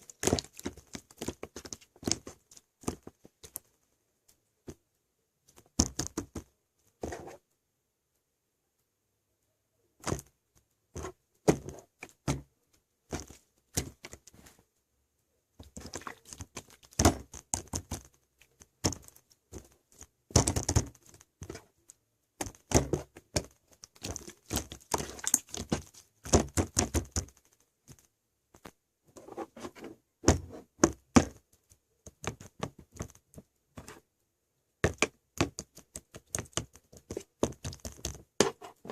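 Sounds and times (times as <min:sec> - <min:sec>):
slime squishing and popping: 0:22.4 - 0:27.4.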